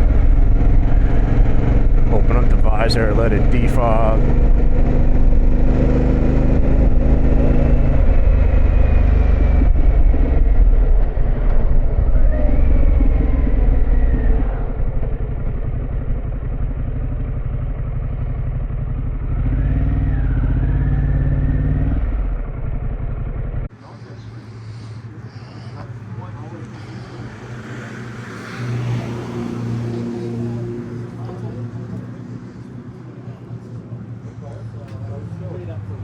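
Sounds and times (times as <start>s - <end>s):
motorcycle engine running: 0.0s - 23.7s.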